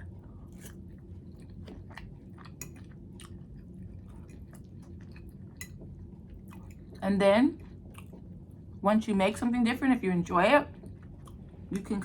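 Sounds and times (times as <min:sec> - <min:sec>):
person chewing food: 0:00.0 - 0:07.0, 0:07.6 - 0:08.8, 0:10.8 - 0:11.7.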